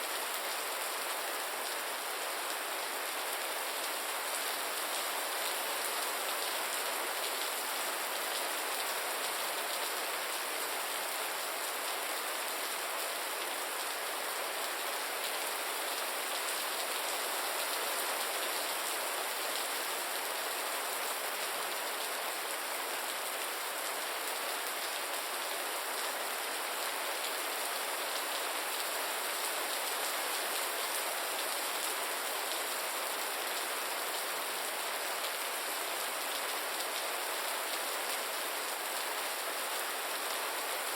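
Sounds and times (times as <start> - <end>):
gentle rain falling: 0.0 - 40.9.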